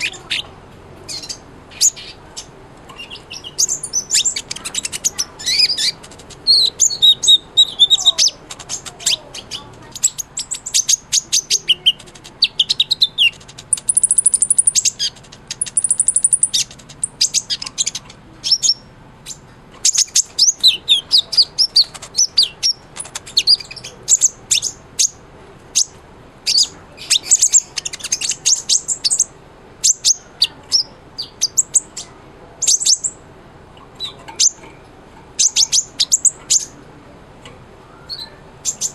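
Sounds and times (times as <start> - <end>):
sunbird singing high chirps: 0.0 - 0.5, 1.1 - 33.2, 35.4 - 36.8, 37.8 - 38.9.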